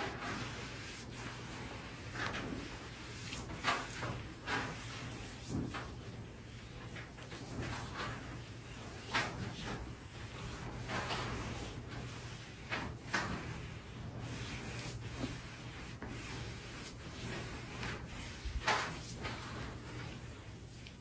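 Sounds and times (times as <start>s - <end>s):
hands rubbing over skin: 6.6s - 21.0s.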